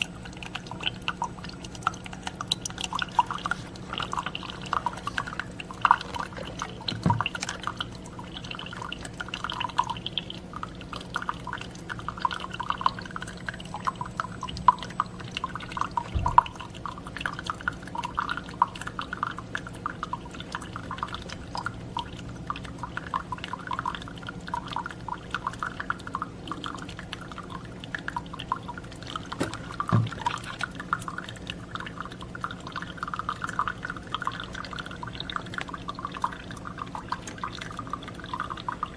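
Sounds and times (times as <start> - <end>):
coffee pouring into a cup: 0.0 - 38.9
low steady hum: 0.0 - 38.9
soft knocks: 29.4 - 30.2.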